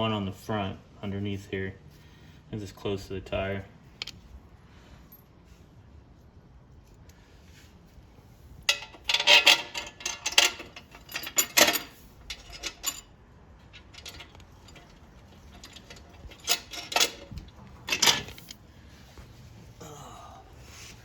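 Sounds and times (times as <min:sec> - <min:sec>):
metal hardware clinking: 0:08.7 - 0:18.6.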